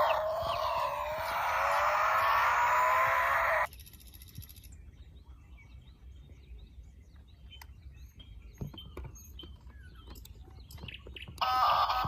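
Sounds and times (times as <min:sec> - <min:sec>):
loud rising tones: 0:00.0 - 0:03.7
small birds chirping: 0:00.0 - 0:12.0.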